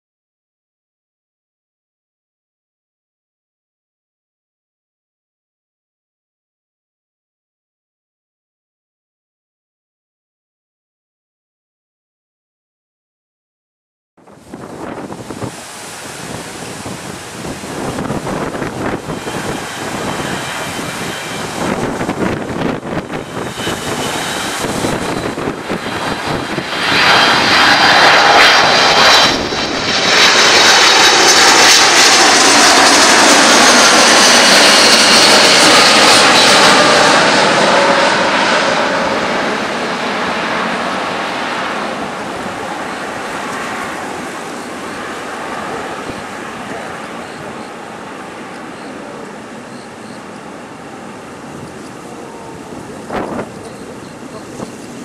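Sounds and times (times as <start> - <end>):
jet airliner passing: 14.2 - 55.0.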